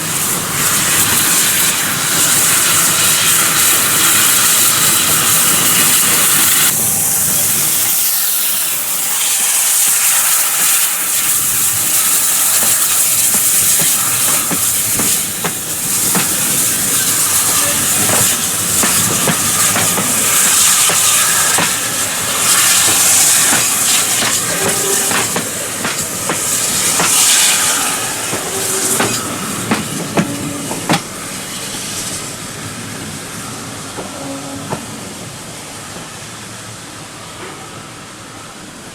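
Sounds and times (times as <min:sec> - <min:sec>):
steam hissing: 0:00.0 - 0:38.9
wheels clicking over rail joints: 0:10.4 - 0:31.2.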